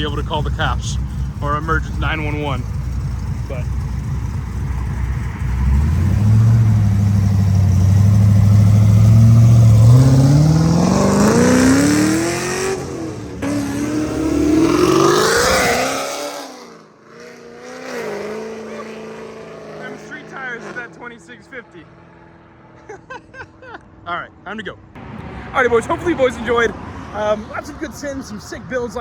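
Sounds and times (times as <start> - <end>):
car engine accelerating: 0.0 - 22.8.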